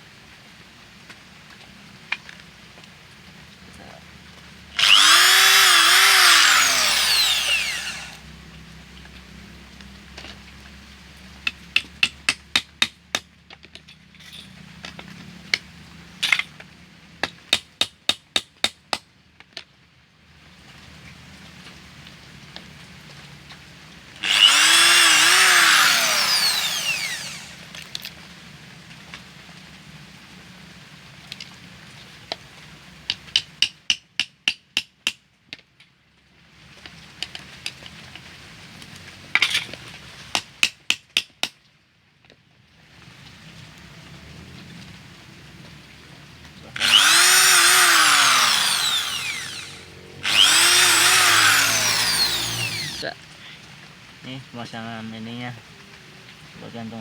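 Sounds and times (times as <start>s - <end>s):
electric power tool running: 4.8s - 8.2s, 24.2s - 27.8s, 46.8s - 53.0s.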